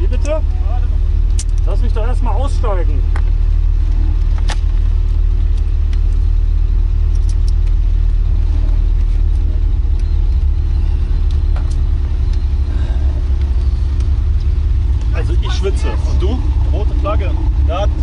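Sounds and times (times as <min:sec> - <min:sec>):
car engine low drone: 0:00.0 - 0:18.0
light clicks and rattles: 0:07.0 - 0:08.2.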